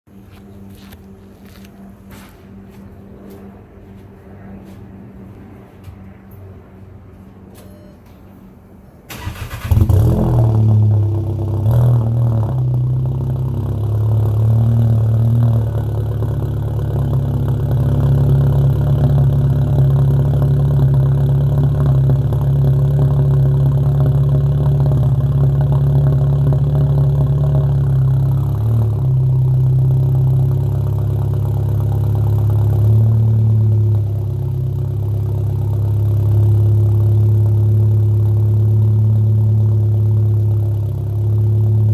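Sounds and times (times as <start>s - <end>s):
car engine starting and idling: 8.5s - 41.9s.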